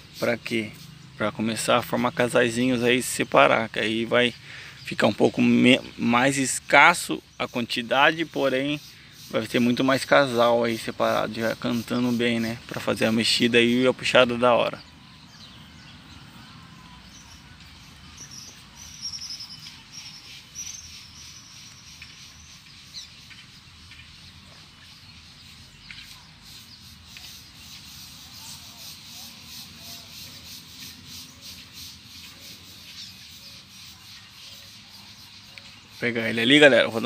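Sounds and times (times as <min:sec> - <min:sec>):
fast high bird trill: 0:00.0 - 0:23.6
songbirds chirping: 0:00.0 - 0:37.0.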